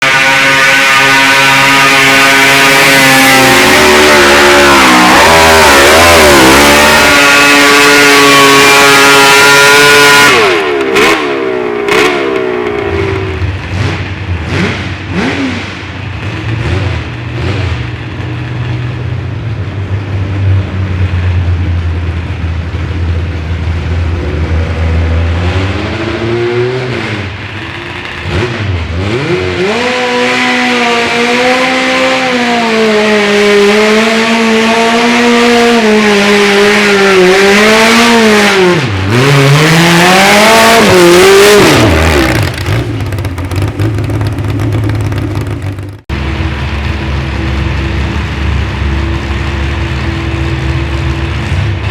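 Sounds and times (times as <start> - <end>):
garden tractor engine revving: 1.1 - 13.9, 37.2 - 46.1.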